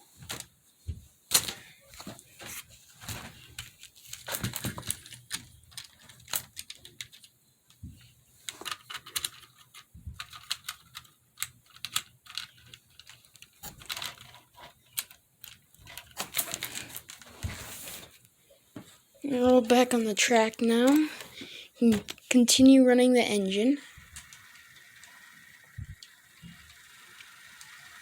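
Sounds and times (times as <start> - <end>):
plastic model train cars clattering: 2.5 - 7.3, 8.4 - 18.1, 23.9 - 28.0.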